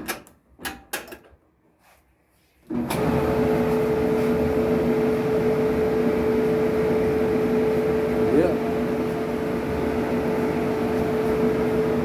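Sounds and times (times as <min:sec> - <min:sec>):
clothes dryer running: 0:02.6 - 0:12.0.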